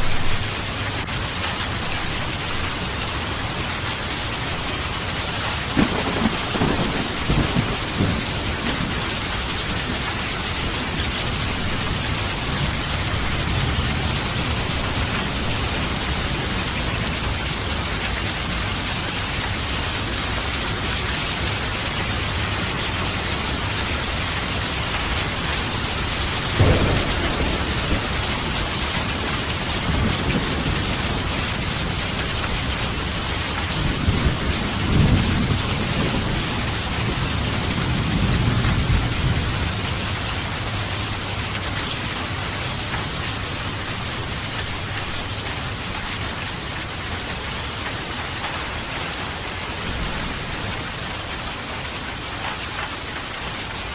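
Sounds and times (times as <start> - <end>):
rolling thunder rumble: 0.0 - 1.0, 5.6 - 19.4, 22.2 - 42.1
heavy rain: 0.0 - 53.9
thunder clap: 5.6 - 16.2, 26.3 - 40.1.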